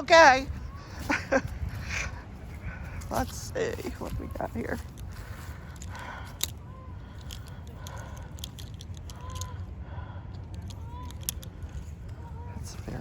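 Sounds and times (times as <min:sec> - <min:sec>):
low rumble: 0:00.3 - 0:13.0
clothes hangers clicking and scraping: 0:02.9 - 0:09.6, 0:10.5 - 0:13.0.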